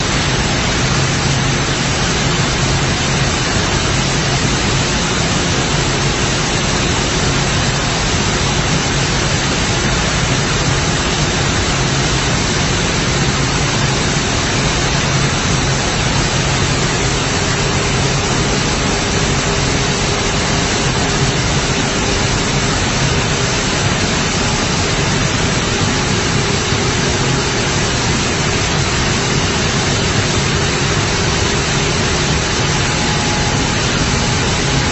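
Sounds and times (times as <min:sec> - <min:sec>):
flour milling machinery rushing: 0:00.0 - 0:34.9
low hum: 0:14.8 - 0:34.9.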